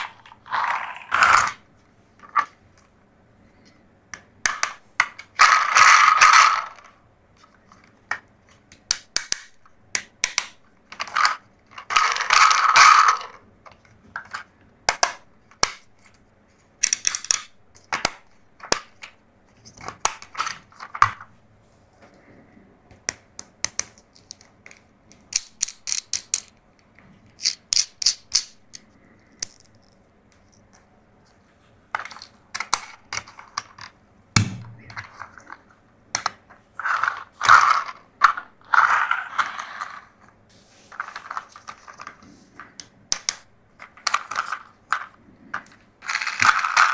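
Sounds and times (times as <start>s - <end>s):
plastic toys clicking and rattling: 0.0s - 1.6s, 4.4s - 21.2s, 23.6s - 26.6s, 27.4s - 30.9s, 31.9s - 34.0s, 35.0s - 40.3s, 40.9s - 46.9s
plastic toys scraping: 0.0s - 2.6s, 36.7s - 42.8s, 43.8s - 46.9s.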